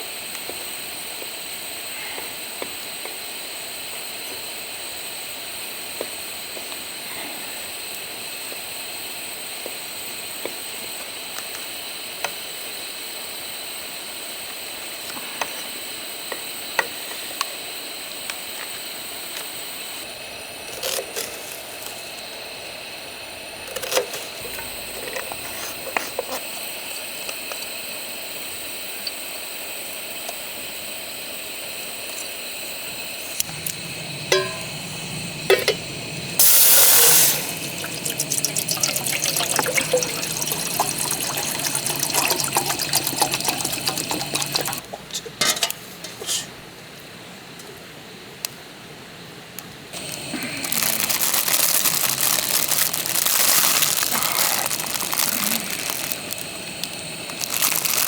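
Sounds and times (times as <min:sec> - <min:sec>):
wood fire hissing and crackling: 0:00.0 - 0:44.9, 0:45.8 - 0:58.0
cooking gear clattering: 0:33.4 - 0:46.5, 0:50.0 - 0:58.0.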